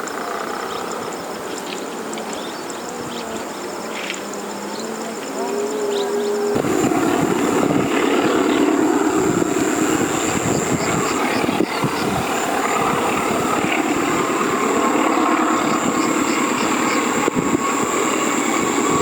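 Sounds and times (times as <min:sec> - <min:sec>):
insects buzzing: 0:00.0 - 0:19.0
diesel locomotive engine rumbling: 0:06.5 - 0:19.0.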